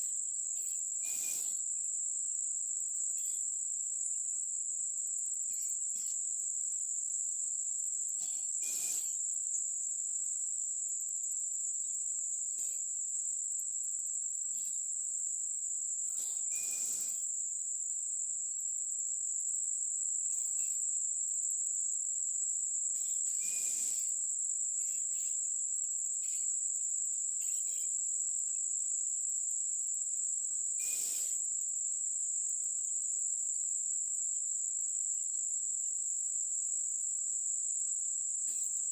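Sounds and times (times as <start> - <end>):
insects singing: 0.6 - 1.7, 22.9 - 24.2, 24.8 - 25.5, 26.1 - 28.0.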